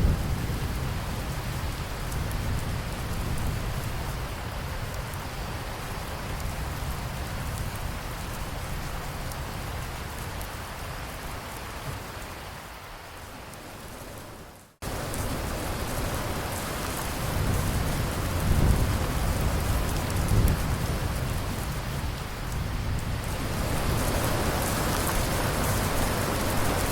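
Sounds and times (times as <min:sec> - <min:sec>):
low rolls of thunder: 0:00.0 - 0:05.0, 0:14.8 - 0:26.9
steady rain falling: 0:00.0 - 0:26.9.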